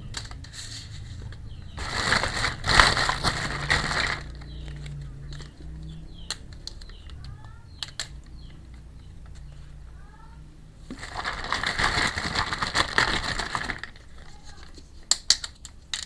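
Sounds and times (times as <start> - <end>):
plastic packaging crinkling: 1.8 - 5.5, 10.9 - 16.0
plastic toy pieces clicking: 2.9 - 9.5, 11.0 - 16.0.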